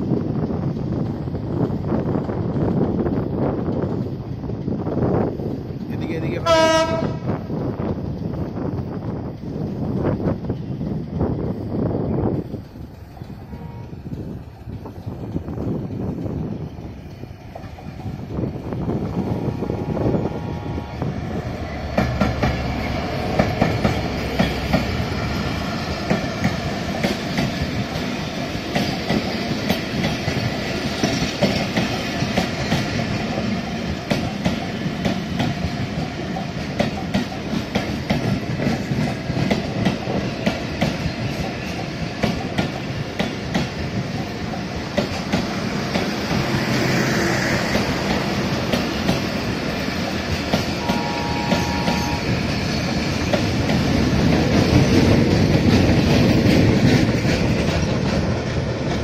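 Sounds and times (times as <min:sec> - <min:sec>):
train rumbling past: 0:00.0 - 0:59.0
wheels clicking over rail joints: 0:21.6 - 0:59.0.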